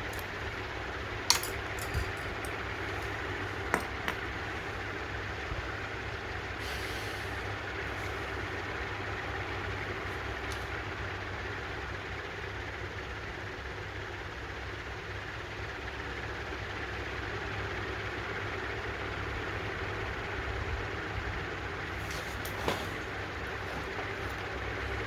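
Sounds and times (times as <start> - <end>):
steady low hum: 0.0 - 13.4, 20.0 - 25.0
light metal clicks: 1.3 - 4.4.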